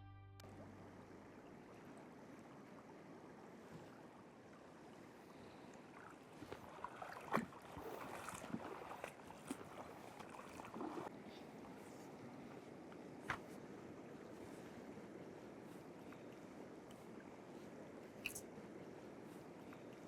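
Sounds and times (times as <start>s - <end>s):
flowing river water: 0.4s - 20.0s
small splashes and knocks: 5.8s - 11.1s, 18.2s - 18.4s.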